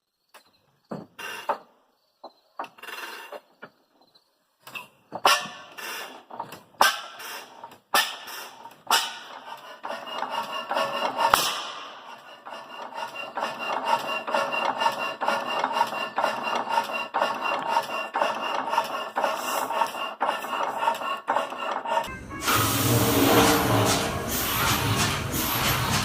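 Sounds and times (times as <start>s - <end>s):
engine knocking: 9.0s - 26.0s
engine running rhythmically: 20.6s - 26.0s
engine loud burst: 22.1s - 26.0s.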